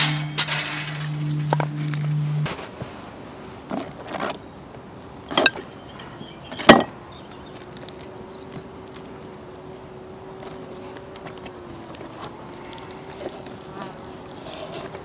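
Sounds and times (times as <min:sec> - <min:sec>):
sharp knocks and clinks: 0:00.0 - 0:02.0
faint steady buzz: 0:00.0 - 0:03.7, 0:04.5 - 0:15.0.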